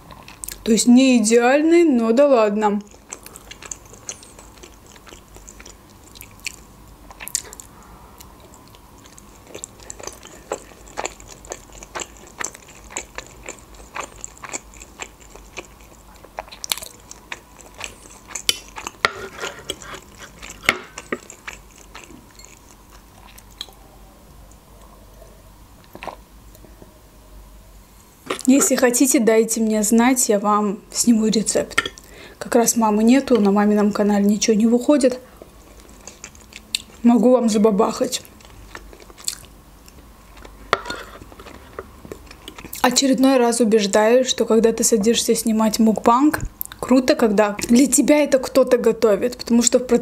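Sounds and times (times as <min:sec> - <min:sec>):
mouth chewing: 0:02.8 - 0:23.8, 0:35.4 - 0:37.0, 0:38.2 - 0:42.9.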